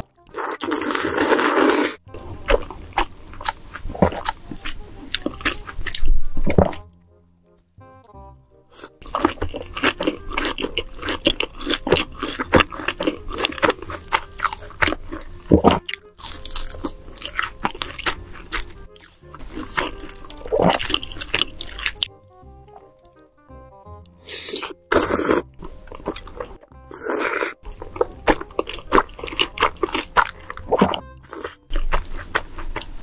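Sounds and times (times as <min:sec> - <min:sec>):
crunching and chewing fried chicken: 0:00.0 - 0:06.9, 0:08.8 - 0:22.1, 0:24.3 - 0:33.0
faint background music: 0:00.0 - 0:33.0.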